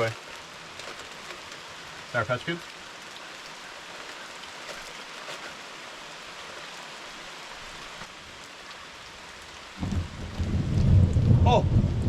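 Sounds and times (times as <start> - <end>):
steady rain: 0.0 - 12.0
thunderclap: 9.8 - 12.0.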